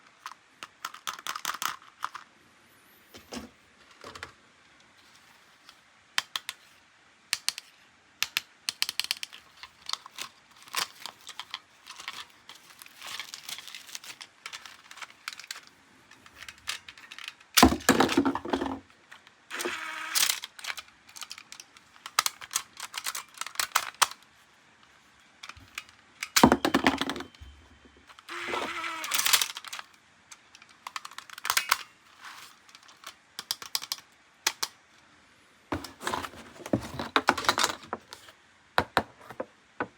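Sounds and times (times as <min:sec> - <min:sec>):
plastic toy parts clicking: 0:00.0 - 0:02.3, 0:06.2 - 0:06.6, 0:07.3 - 0:27.4, 0:28.1 - 0:34.8
rustling: 0:35.7 - 0:38.4.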